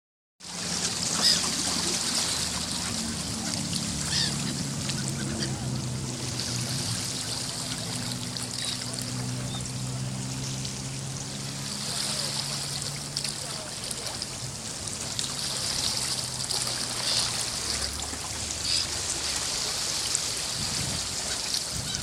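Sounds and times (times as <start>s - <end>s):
sea water washing on shore: 0.4s - 22.0s.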